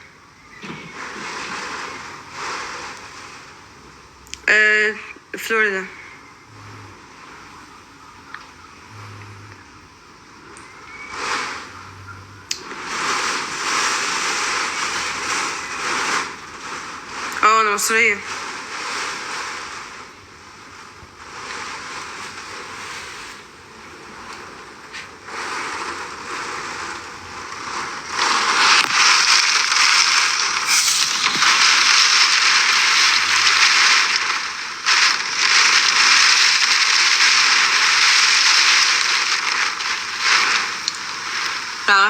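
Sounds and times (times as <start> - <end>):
strong wind roaring: 18.2 - 42.0.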